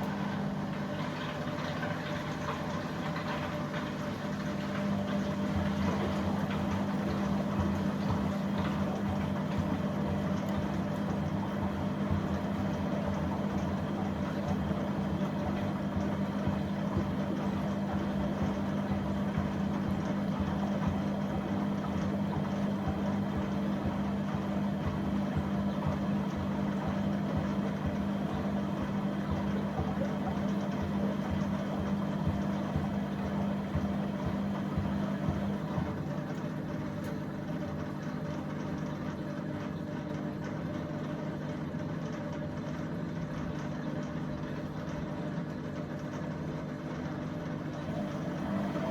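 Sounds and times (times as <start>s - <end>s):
motor humming: 0.0s - 39.7s, 47.6s - 48.9s.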